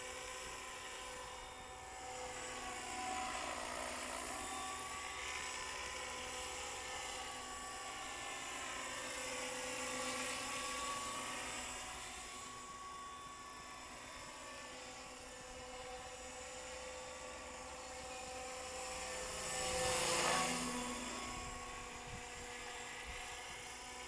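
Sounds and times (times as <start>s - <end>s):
model helicopter whine and rotor buzz: 0.0s - 24.0s.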